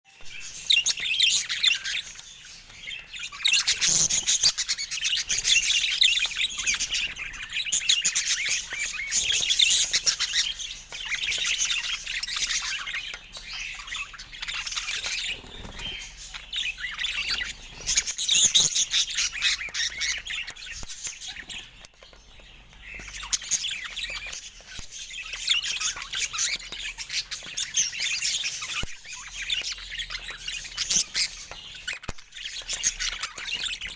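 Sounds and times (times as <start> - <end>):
budgerigars chirping and chattering: 0.1 - 33.9.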